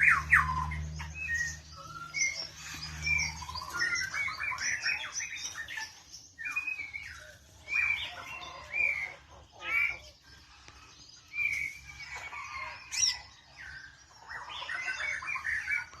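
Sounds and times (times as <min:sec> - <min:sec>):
bird singing whistled phrases: 0:00.0 - 0:08.2.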